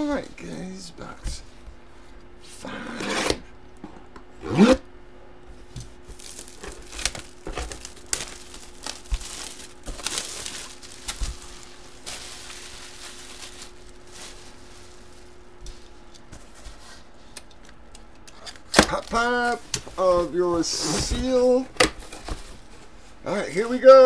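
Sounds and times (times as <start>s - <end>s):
plastic wrap crinkling and tearing: 6.0s - 15.9s.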